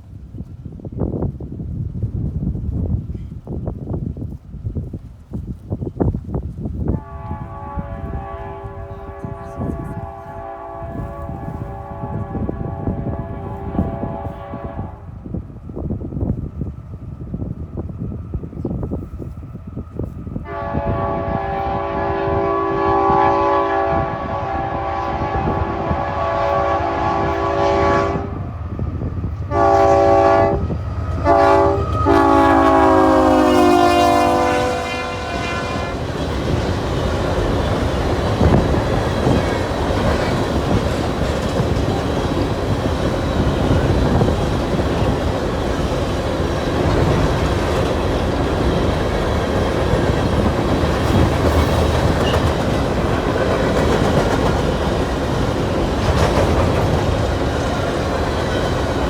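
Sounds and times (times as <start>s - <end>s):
locomotive air horn: 6.9s - 15.2s, 20.4s - 28.5s, 29.5s - 36.2s
train wheels clacking and rumbling: 34.1s - 59.0s.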